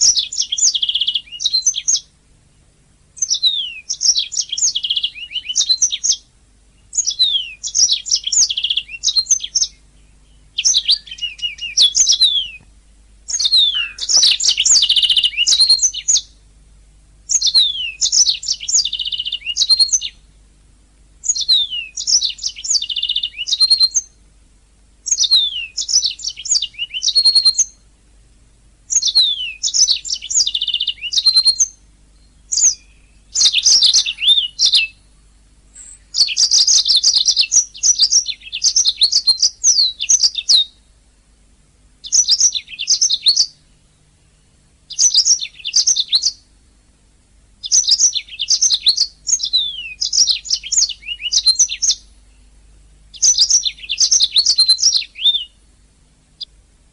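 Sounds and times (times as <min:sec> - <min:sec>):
canary singing: 0:00.0 - 0:16.5, 0:17.2 - 0:20.4, 0:21.2 - 0:24.2, 0:25.0 - 0:27.9, 0:28.9 - 0:41.0, 0:42.0 - 0:46.8, 0:47.6 - 0:55.7.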